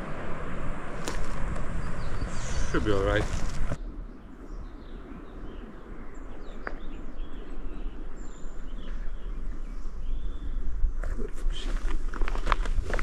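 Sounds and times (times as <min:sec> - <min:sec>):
low rumble: 0:00.0 - 0:11.0
footsteps on trail: 0:00.9 - 0:03.8, 0:11.5 - 0:13.0
small birds chirping: 0:01.0 - 0:12.6.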